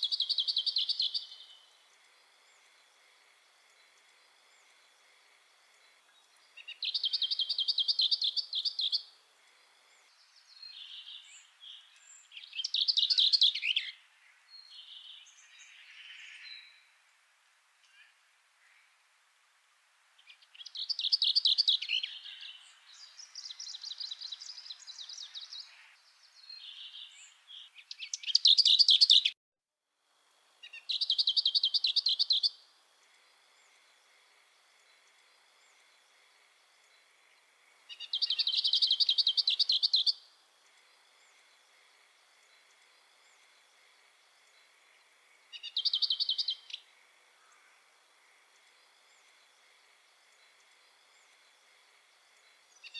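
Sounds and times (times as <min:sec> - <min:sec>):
songbird trilling: 0:00.0 - 0:01.6, 0:06.6 - 0:09.0, 0:26.6 - 0:29.3, 0:30.6 - 0:32.6, 0:37.9 - 0:40.2, 0:45.5 - 0:46.8.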